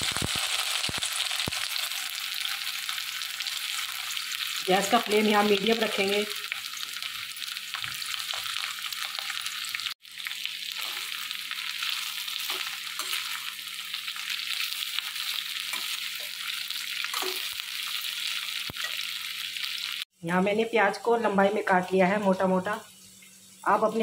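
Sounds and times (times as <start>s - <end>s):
vegetables sizzling in oil: 0.0s - 20.1s, 20.9s - 24.0s
metal spatula scraping: 10.8s - 18.0s.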